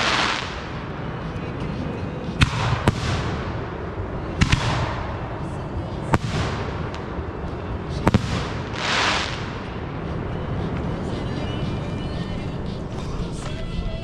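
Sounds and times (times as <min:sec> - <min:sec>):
fireworks bangs: 0:00.0 - 0:01.4, 0:02.3 - 0:10.0.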